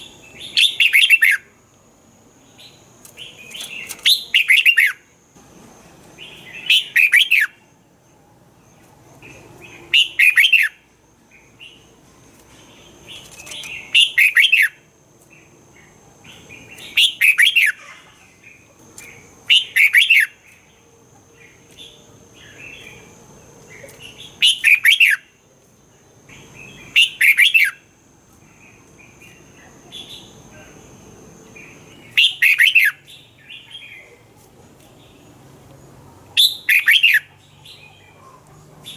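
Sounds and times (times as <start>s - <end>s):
bird singing song phrases: 0.0s - 1.6s, 2.4s - 5.1s, 6.1s - 7.7s, 8.6s - 35.4s, 36.3s - 38.9s
soft bird chirps: 8.6s - 38.9s.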